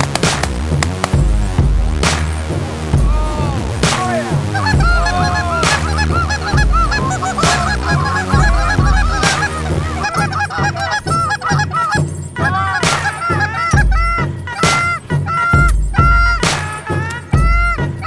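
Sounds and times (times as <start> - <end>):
music with steady beat: 0.0 - 18.0
geese honking: 3.8 - 18.0.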